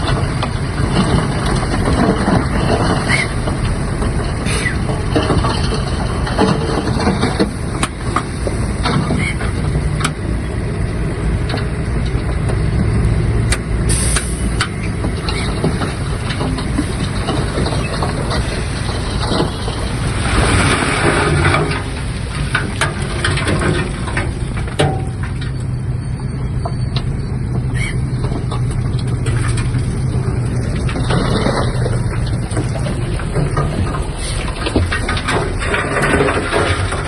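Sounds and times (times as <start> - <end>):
bulldozer diesel engine running: 0.0 - 37.0
clicks and knocks: 13.4 - 25.8, 26.6 - 37.0.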